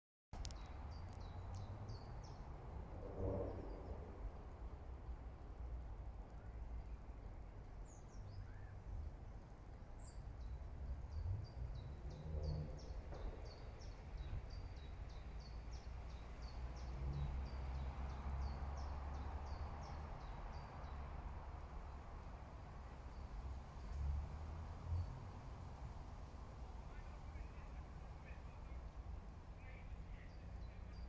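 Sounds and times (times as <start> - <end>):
small bird singing: 29.6 - 31.0.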